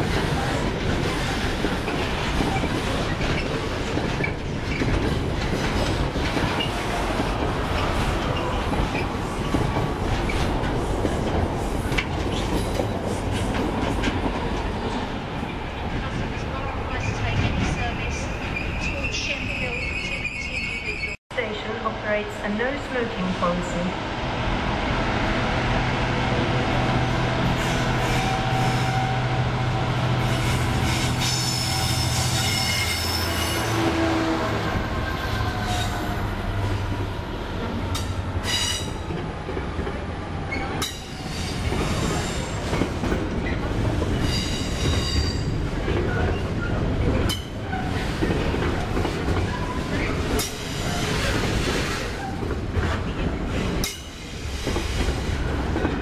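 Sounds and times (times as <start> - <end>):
high-pitched wheel squeals: 31.3 - 33.6.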